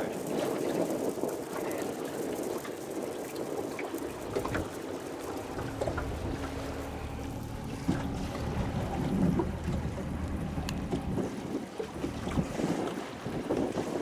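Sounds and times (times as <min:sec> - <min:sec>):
water moving around boat: 0:02.2 - 0:14.0
wind buffeting microphone: 0:03.8 - 0:14.0
low steady hum: 0:04.1 - 0:13.0.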